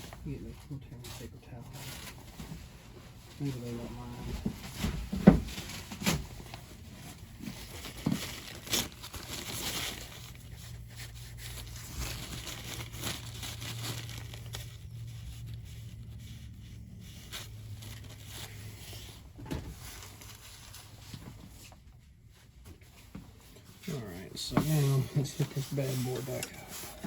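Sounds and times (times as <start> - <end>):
low steady hum: 0.0 - 27.0
paper towels tearing and crumpling: 4.9 - 21.7, 23.9 - 27.0.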